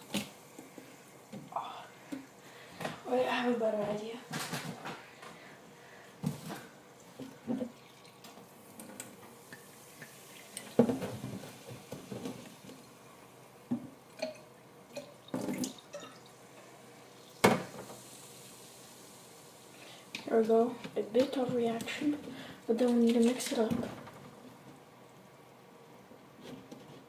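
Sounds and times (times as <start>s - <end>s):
dripping liquid: 7.0s - 10.9s, 12.0s - 20.3s.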